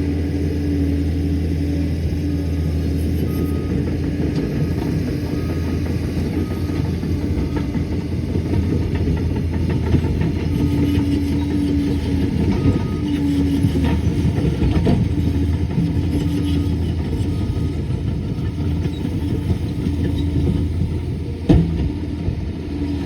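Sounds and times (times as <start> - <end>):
diesel engine drone: 0.0 - 23.0.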